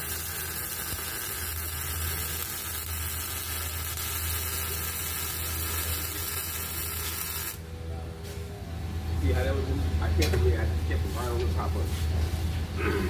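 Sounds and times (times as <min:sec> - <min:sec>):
welding arc crackling: 0:00.0 - 0:07.6.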